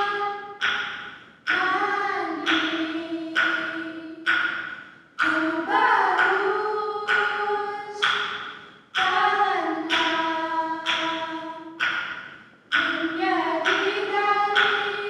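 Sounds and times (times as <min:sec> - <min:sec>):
female vocal group singing: 0:00.0 - 0:00.7, 0:01.5 - 0:04.4, 0:05.2 - 0:08.3, 0:09.0 - 0:11.8, 0:12.7 - 0:15.0
sharp tap marking beat: 0:00.0 - 0:07.4, 0:08.0 - 0:15.0.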